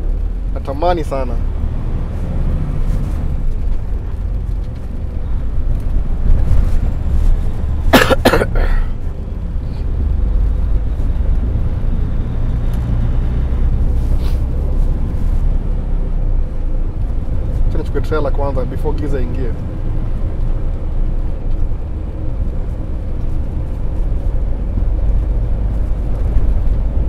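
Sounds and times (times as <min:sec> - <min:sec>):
road noise: 0:00.0 - 0:27.0
truck engine rumble: 0:00.0 - 0:27.0
man coughing: 0:07.9 - 0:09.0.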